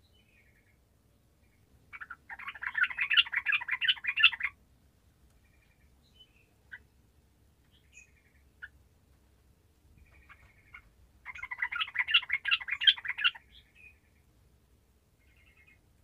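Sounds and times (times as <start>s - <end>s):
bird chirps: 1.4s - 4.6s, 5.4s - 6.9s, 7.7s - 8.8s, 10.0s - 14.3s, 15.2s - 15.8s.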